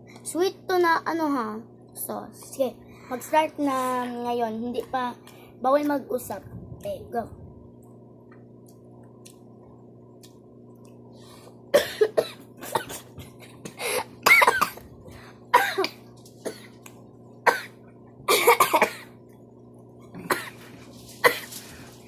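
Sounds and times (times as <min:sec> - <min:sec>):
person coughing: 0:11.7 - 0:14.9, 0:15.5 - 0:16.8, 0:17.5 - 0:19.2, 0:20.1 - 0:20.6, 0:21.2 - 0:21.6.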